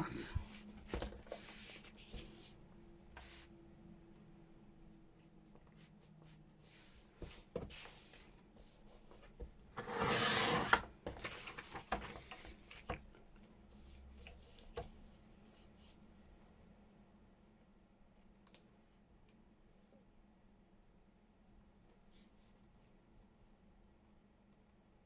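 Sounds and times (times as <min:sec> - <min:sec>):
rasping paper cutting stroke: 0:09.8 - 0:10.9
paper rustling: 0:09.8 - 0:12.8.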